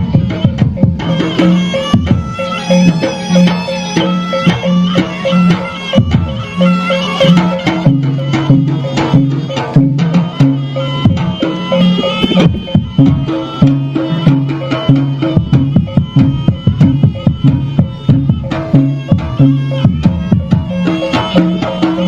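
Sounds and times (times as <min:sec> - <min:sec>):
hand drums beating: 0:00.0 - 0:22.0
sustained low tones: 0:11.0 - 0:14.4.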